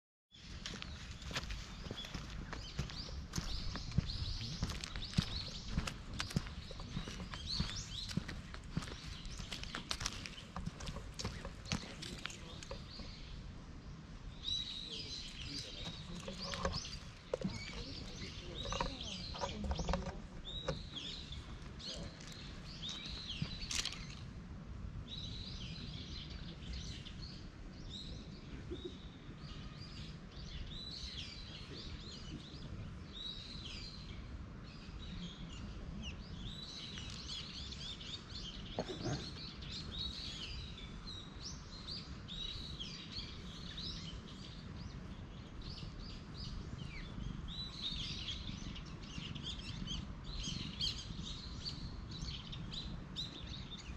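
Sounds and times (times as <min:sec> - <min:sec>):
wild birds chirping: 0:00.3 - 0:53.9
steady low rumble: 0:00.4 - 0:28.6.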